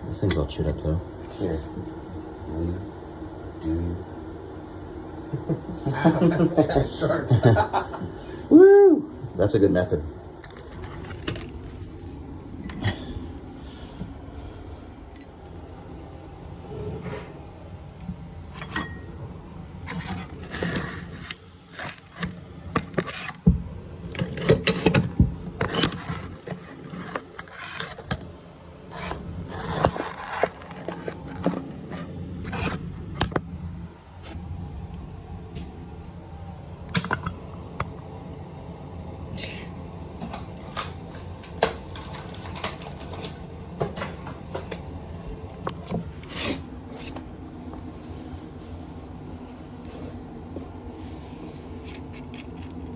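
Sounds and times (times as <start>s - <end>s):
hand tools scraping and clicking: 10.4s - 11.9s, 19.9s - 23.4s, 24.1s - 28.3s, 28.9s - 33.4s, 51.7s - 52.9s.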